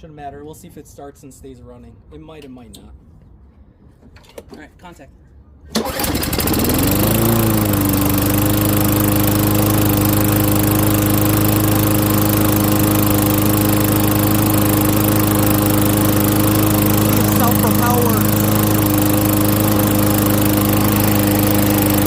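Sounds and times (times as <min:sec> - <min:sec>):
lawn mower engine revving: 0:05.8 - 0:22.0.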